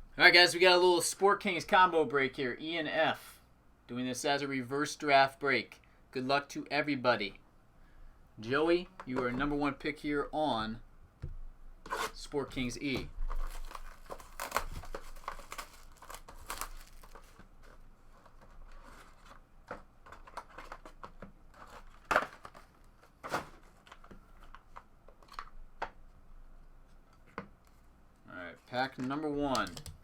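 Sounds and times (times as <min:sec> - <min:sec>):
packaging torn and crinkled: 0:13.2 - 0:17.4.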